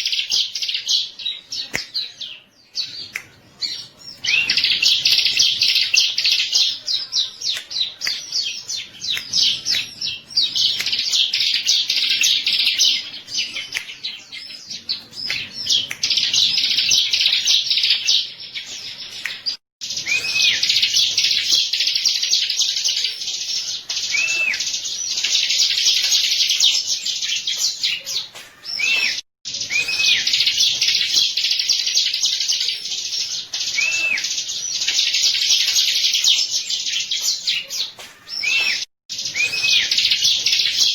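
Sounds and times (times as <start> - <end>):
bird chirps and trills: 0.0 - 40.9
bird whistled notes: 20.0 - 20.9, 28.7 - 30.6, 33.7 - 34.3, 38.3 - 40.4.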